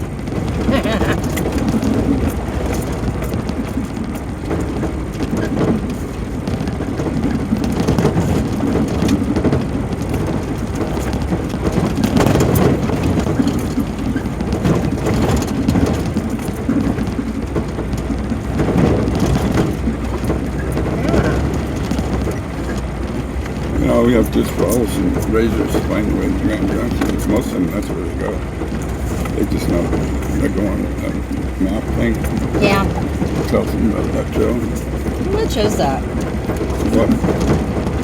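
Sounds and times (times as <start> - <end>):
knocks and rattles: 0.0 - 38.0
vehicle engine and tyres rumbling: 0.0 - 38.0.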